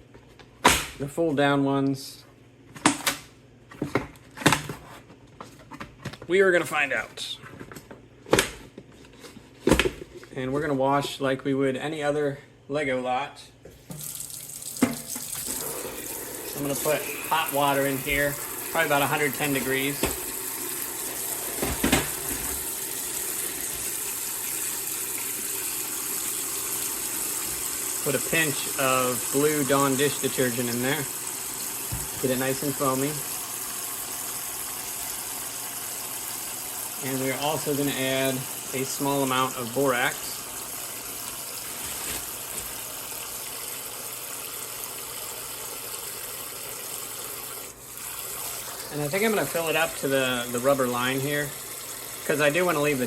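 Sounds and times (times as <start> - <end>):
water pouring into tub: 14.0 - 53.0.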